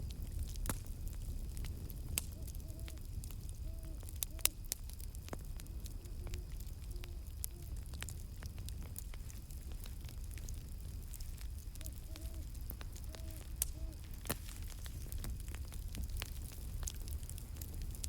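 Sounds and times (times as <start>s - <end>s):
campfire crackling and popping: 0.0s - 18.0s
distant owl hooting: 2.3s - 4.5s, 11.8s - 14.1s.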